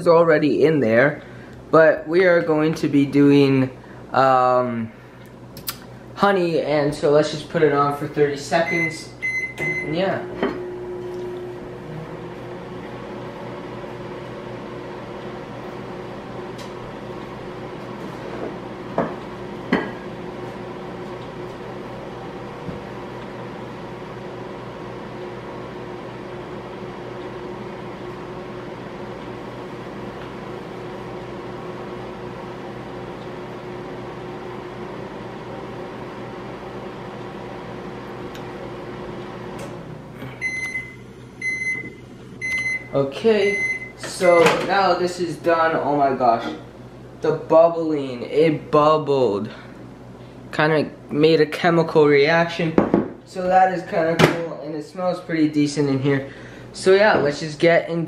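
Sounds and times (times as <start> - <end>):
microwave oven humming: 0.0 - 58.0
microwave beeping: 8.4 - 45.0.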